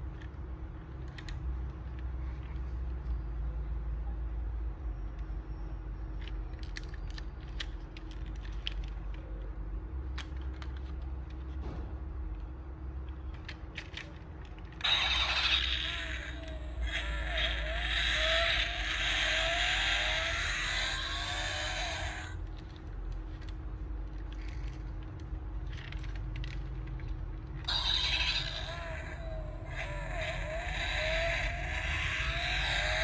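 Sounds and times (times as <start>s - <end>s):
toy car clicking when handled: 0.0s - 3.1s, 6.1s - 9.3s, 10.0s - 11.6s, 12.3s - 33.0s
electronic toy engine sound: 14.8s - 22.7s, 27.6s - 33.0s.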